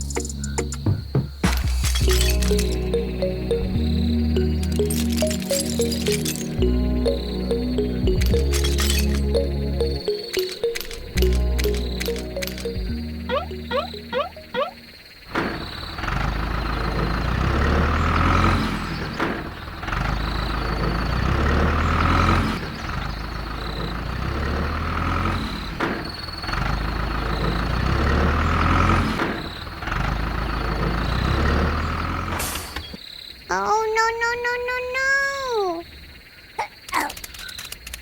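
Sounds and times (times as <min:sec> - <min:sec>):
heavy truck engine running: 0:15.3 - 0:32.4.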